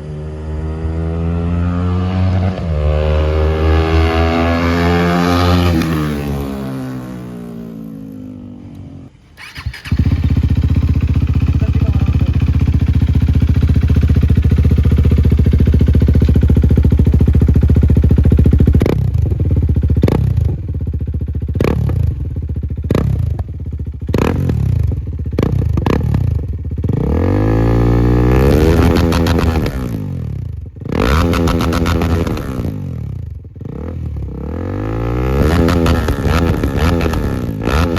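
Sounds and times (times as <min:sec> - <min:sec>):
motorcycle engine idling and revving: 0:00.0 - 0:37.9.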